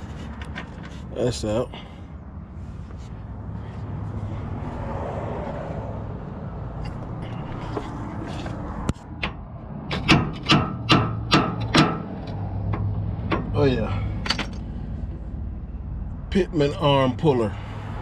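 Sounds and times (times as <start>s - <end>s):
scraping and rubbing: 0.0s - 1.2s, 6.9s - 9.2s
metallic clanks of tools: 14.2s - 14.7s.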